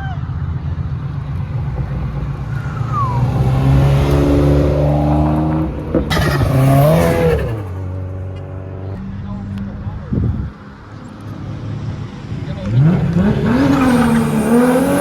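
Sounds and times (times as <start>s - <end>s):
car engine revving: 1.2s - 15.0s
sharp exhaust crack: 6.0s - 7.8s.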